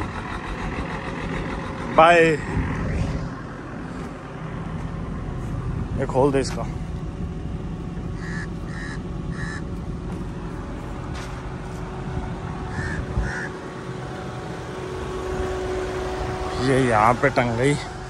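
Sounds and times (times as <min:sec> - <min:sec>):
engine rumbling: 0:00.0 - 0:18.0
bird calling: 0:08.1 - 0:09.8, 0:12.6 - 0:13.7.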